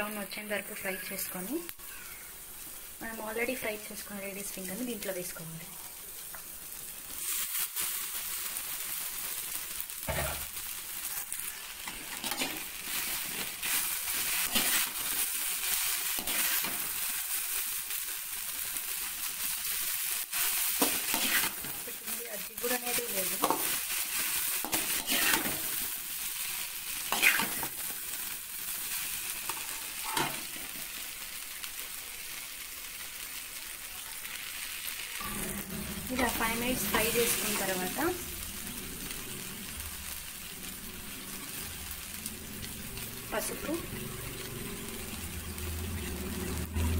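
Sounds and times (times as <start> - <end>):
okra sizzling in hot oil: 0.0 - 46.9
metal ladle scraping a pan: 11.8 - 15.2, 20.3 - 21.8, 23.4 - 25.8.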